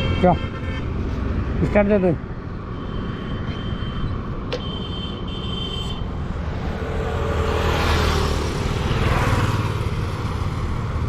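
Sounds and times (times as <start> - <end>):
road traffic rumble: 0.0 - 11.0
vehicle passing close by: 6.1 - 11.0.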